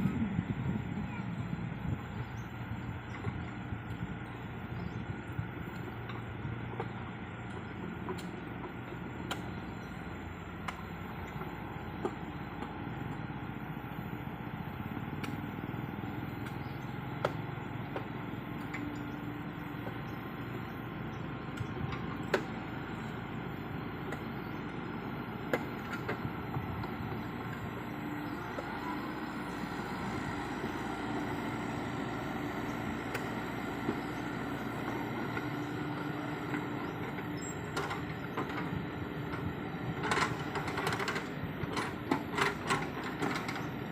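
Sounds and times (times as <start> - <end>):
diesel excavator engine running: 0.0 - 43.9.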